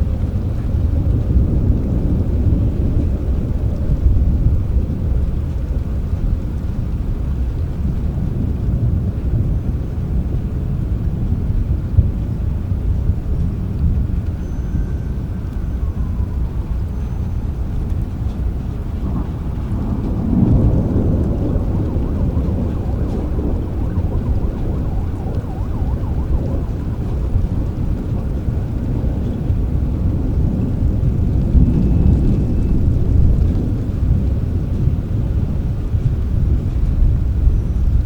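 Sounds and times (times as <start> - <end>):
steady rain: 0.0 - 38.0
low rolling thunder: 16.0 - 36.6.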